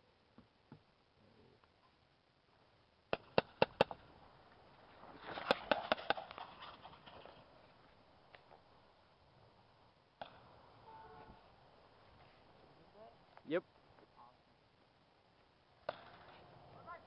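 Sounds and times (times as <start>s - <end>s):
rustling: 1.3s - 8.6s, 10.2s - 14.4s
airsoft guns firing: 3.1s - 4.0s, 5.3s - 6.4s, 15.8s - 16.4s.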